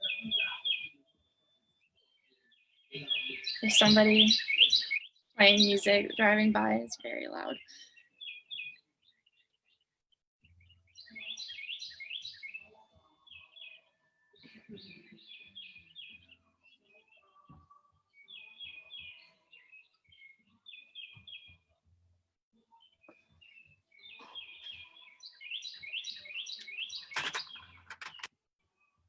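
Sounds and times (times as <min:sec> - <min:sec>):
songbirds chirping: 0:00.0 - 0:21.9, 0:22.6 - 0:29.0.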